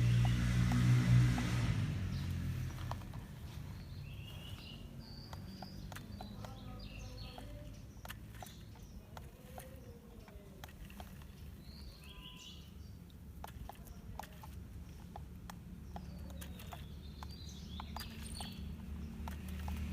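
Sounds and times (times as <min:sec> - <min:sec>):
steady low rumble: 0:00.0 - 0:06.1
small clicks: 0:00.0 - 0:19.9
bird chirps: 0:01.4 - 0:19.9.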